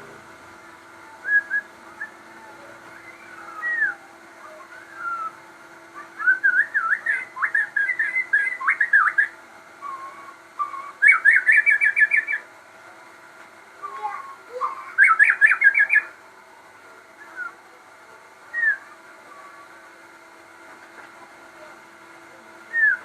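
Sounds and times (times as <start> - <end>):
faint steady hum: 0.0 - 23.0
songbird singing: 1.0 - 12.5, 13.8 - 16.2, 17.1 - 17.8, 18.4 - 19.8, 22.6 - 23.0.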